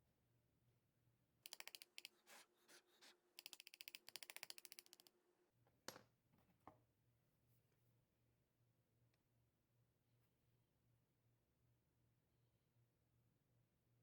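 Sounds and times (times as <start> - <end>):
rapid ratchet-like clicking: 1.5 - 2.1, 3.4 - 5.1.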